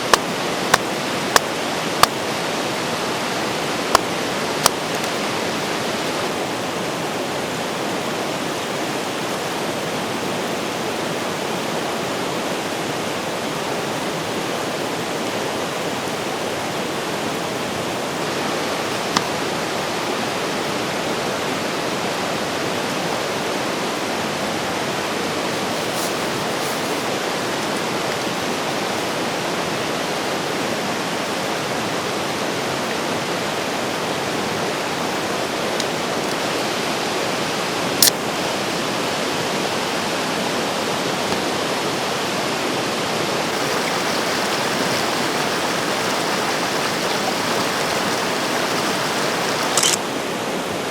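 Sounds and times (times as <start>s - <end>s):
river rushing over rocks: 0.0s - 50.9s
sharp click: 49.8s - 50.0s.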